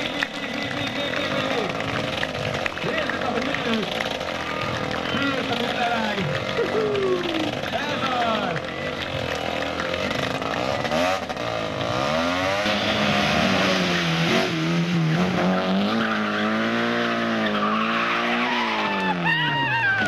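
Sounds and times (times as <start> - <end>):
race car engine revving: 0.0 - 20.0
tyre squeal: 15.8 - 20.0.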